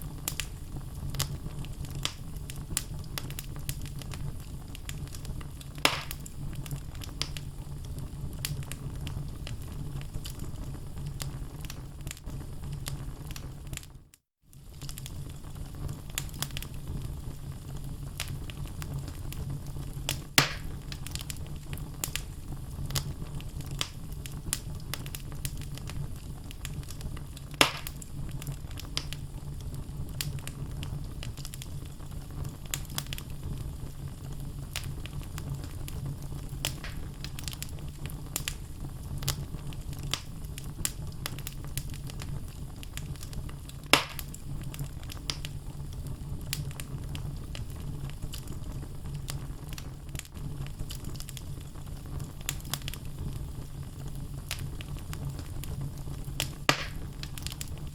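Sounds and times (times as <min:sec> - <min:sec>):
loud fire pops: 0:00.0 - 0:13.9, 0:14.6 - 0:57.9
logs crackling in fireplace: 0:00.0 - 0:57.9
low fire rumble: 0:00.0 - 0:57.9.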